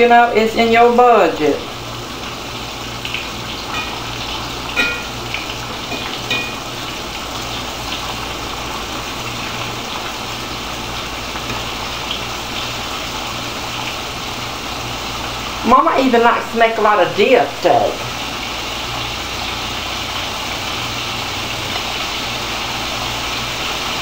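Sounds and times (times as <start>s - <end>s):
meat sizzling in hot oil: 0.2s - 24.0s
metal fork clinking against pan: 4.8s - 5.1s, 5.9s - 6.6s.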